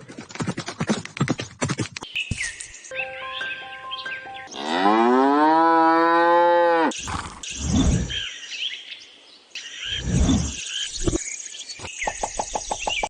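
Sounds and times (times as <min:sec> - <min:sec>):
birds chirping: 0:01.3 - 0:13.0
cow mooing: 0:04.6 - 0:07.0.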